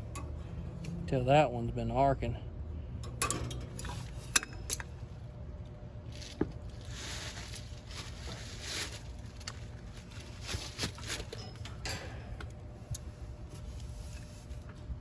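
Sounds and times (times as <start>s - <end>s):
steady low hum: 0.0s - 15.0s
rustling and scraping of tools: 3.2s - 5.0s, 6.1s - 15.0s.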